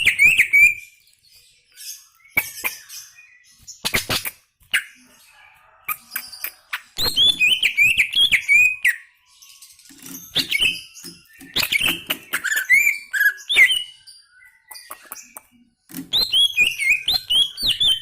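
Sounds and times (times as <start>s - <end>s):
bird singing gliding whistles: 0.0s - 3.8s, 6.0s - 15.4s, 16.1s - 18.0s
sharp clicks: 14.7s - 16.8s.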